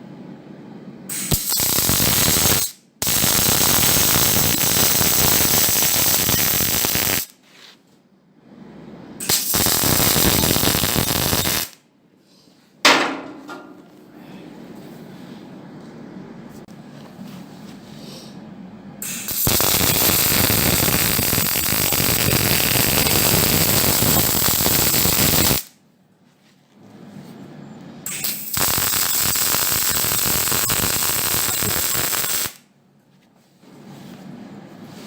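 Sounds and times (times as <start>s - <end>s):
welding arc crackling: 1.1s - 7.4s, 9.2s - 11.8s, 19.0s - 25.7s, 28.1s - 32.6s.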